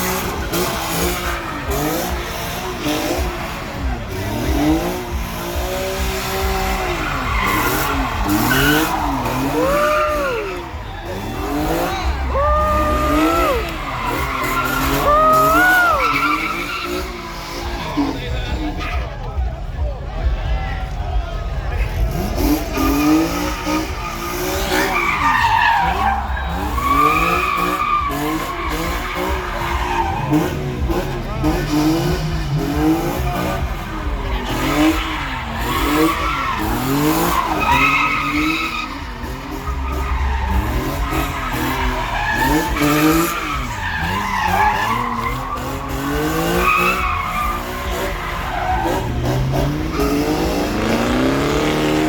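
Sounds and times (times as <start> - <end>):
car engine revving: 0.0 - 52.0
tires squealing: 0.0 - 52.0
tyres squealing: 6.2 - 17.6.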